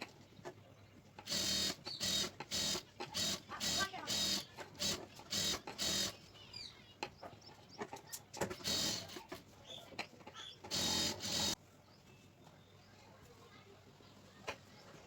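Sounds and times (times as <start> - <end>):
sewing machine stitching: 1.2 - 6.2, 8.5 - 9.2, 10.7 - 11.6.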